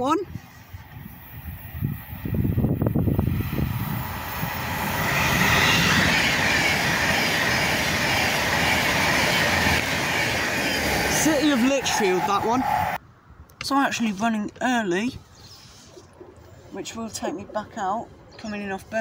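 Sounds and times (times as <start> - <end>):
electric train passing at speed: 0.2 - 13.0.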